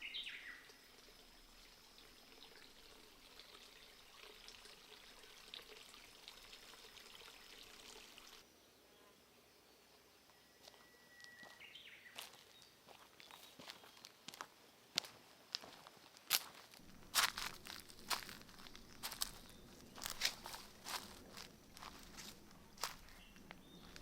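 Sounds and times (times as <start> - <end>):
stream trickling: 0.0 - 8.5, 15.5 - 24.0
faint high insect-like tone: 0.0 - 15.8, 16.4 - 24.0.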